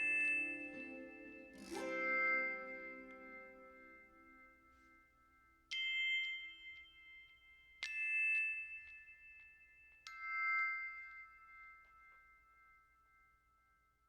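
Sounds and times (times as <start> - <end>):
slow bell-like chime notes: 0.0 - 14.0.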